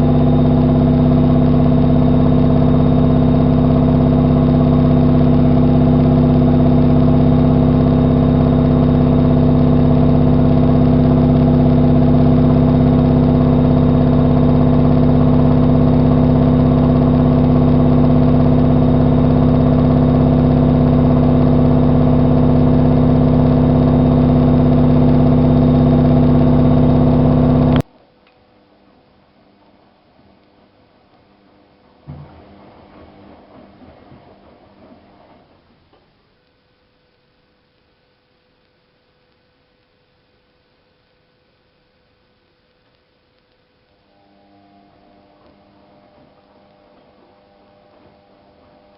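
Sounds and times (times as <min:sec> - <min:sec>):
washing machine humming: 0:00.0 - 0:36.4, 0:44.1 - 0:48.9.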